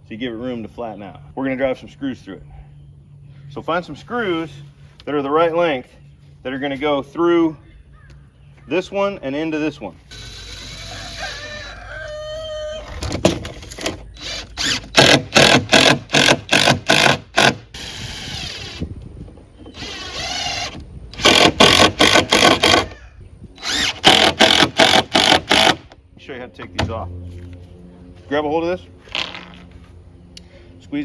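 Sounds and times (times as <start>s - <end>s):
cordless drill driving screws: 10.1s - 11.4s, 13.6s - 18.9s, 19.7s - 23.0s, 23.6s - 26.0s.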